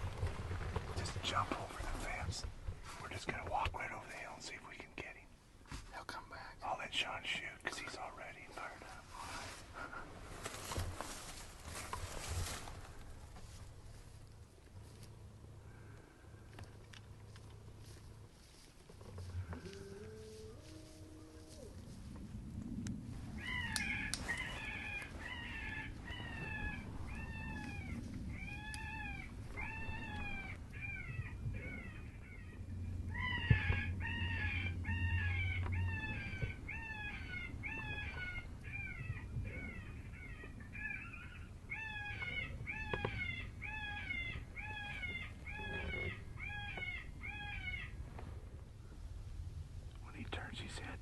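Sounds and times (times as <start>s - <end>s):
predator call rabbit distress cries: 23.4s - 32.4s, 33.1s - 47.9s.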